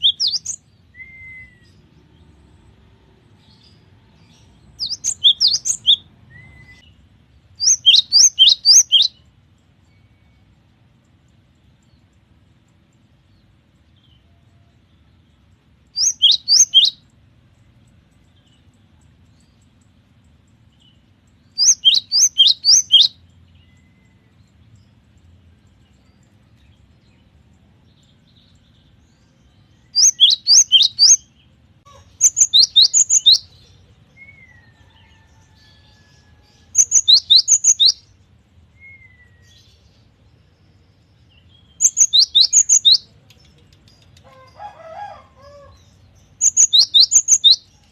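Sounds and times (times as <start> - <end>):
bird singing whistled notes: 0.0 - 1.9, 3.6 - 7.0, 7.6 - 10.5, 15.9 - 17.1, 21.4 - 24.5, 28.4 - 31.5, 32.2 - 34.8, 36.8 - 40.0, 41.2 - 43.3, 46.2 - 47.9.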